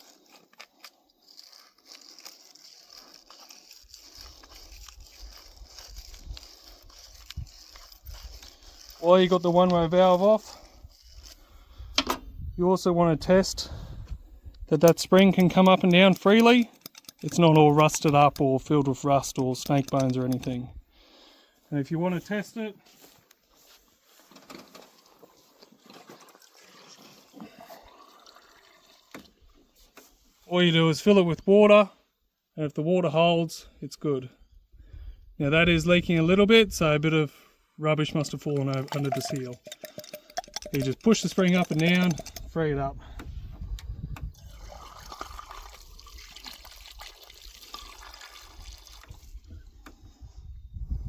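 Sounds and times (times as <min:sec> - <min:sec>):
water trickling: 0:25.0 - 0:29.5, 0:38.6 - 0:42.4, 0:44.4 - 0:49.3.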